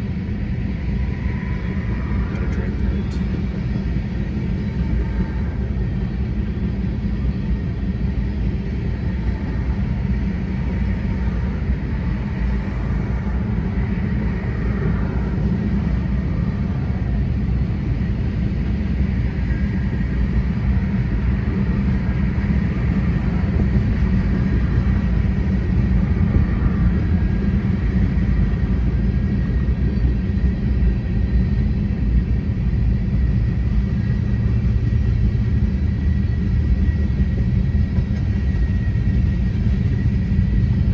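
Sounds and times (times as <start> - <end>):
freight train wheels rumbling on rail: 0.0 - 40.9.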